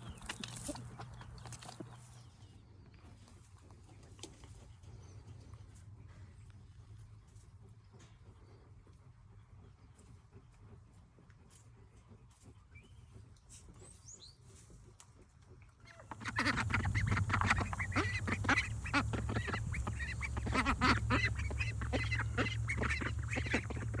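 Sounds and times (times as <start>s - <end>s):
chicks peeping: 15.9s - 24.0s
waterfowl calling: 15.9s - 24.0s
low hum: 16.1s - 24.0s.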